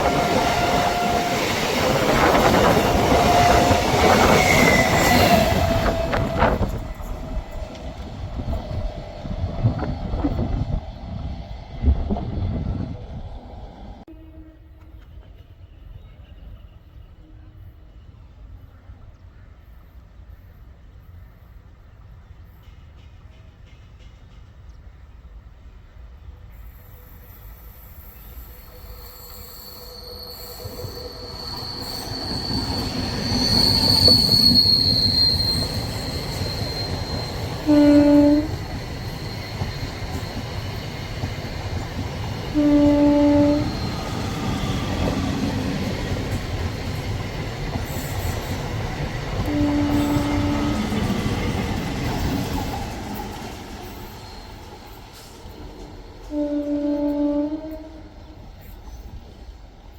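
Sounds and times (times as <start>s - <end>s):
train horn blasts: 0.0s - 6.8s, 14.1s - 15.8s, 37.5s - 38.8s, 42.4s - 45.2s, 49.4s - 51.5s, 56.3s - 58.5s
train wheels squealing on rails: 0.0s - 11.4s, 12.1s - 24.6s, 26.3s - 59.9s
train rumble: 0.0s - 59.9s.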